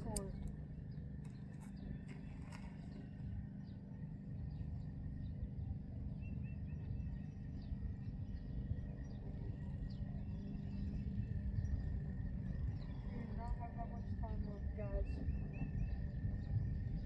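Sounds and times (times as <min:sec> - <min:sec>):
low outdoor rumble: 0:08.7 - 0:17.0.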